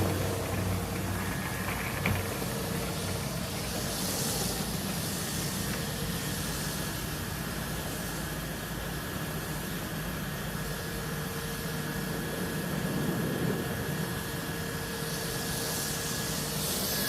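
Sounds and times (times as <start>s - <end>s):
faint motor whine: 0.0s - 17.0s
pressure washer jet hissing: 0.0s - 17.0s.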